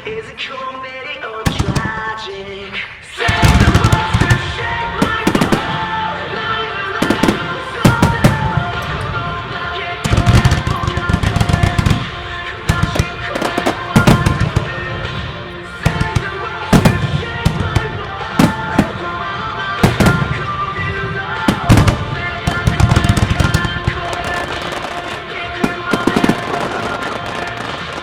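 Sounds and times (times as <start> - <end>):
rock song over loudspeakers: 0.0 - 28.0
fireworks bangs: 1.5 - 28.0.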